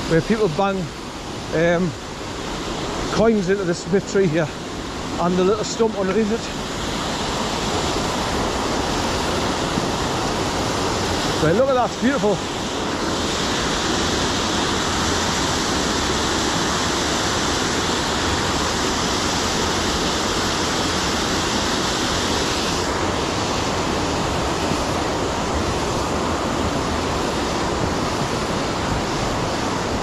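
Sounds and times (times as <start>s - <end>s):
waterfall and rapids rushing: 0.0s - 30.0s.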